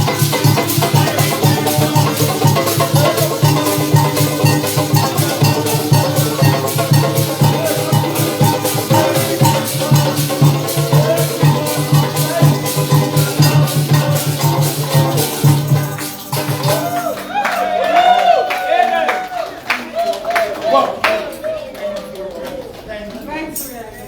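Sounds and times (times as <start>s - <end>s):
fast shaker rhythm: 0.0s - 18.7s.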